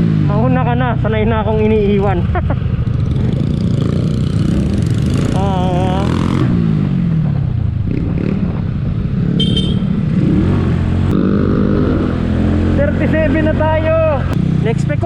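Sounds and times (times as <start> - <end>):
motorcycle engine running: 0.0 - 15.0
short high beep: 9.4 - 9.8.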